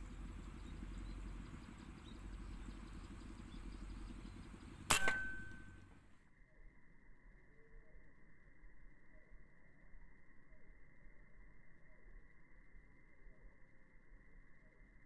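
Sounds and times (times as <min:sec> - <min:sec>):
engine rumbling: 0:00.0 - 0:06.0
air rifle shot: 0:04.8 - 0:05.8
brief ringing tone: 0:04.9 - 0:05.8.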